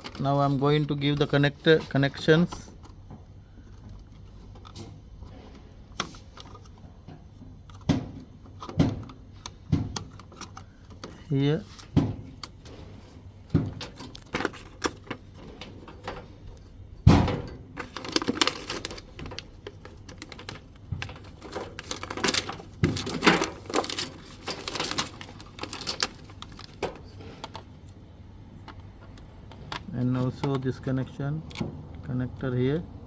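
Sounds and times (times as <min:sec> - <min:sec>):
plastic connectors clicking and rattling: 0:07.6 - 0:12.6, 0:13.5 - 0:16.7, 0:17.7 - 0:28.0.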